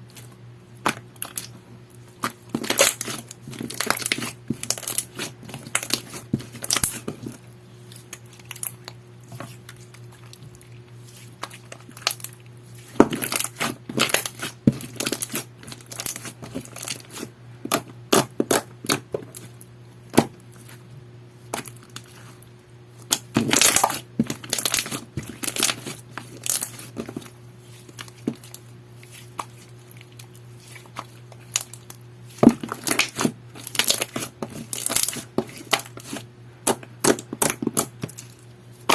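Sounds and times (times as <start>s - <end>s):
steady low hum: 0.0s - 38.9s
slime crackling and popping: 2.2s - 7.1s, 11.4s - 17.2s, 23.1s - 27.0s, 29.3s - 38.9s.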